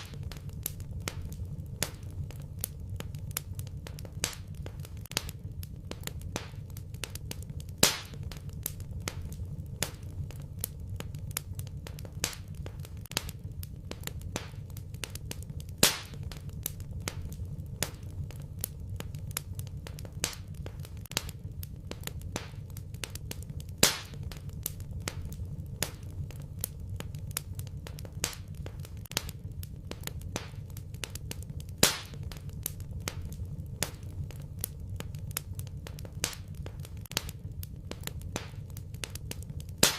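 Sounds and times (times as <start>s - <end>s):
low fire rumble: 0.0s - 39.9s
wood fire crackling: 0.0s - 39.9s
loud fire pop: 7.8s - 10.1s, 15.8s - 18.1s, 23.8s - 26.1s, 31.8s - 34.1s.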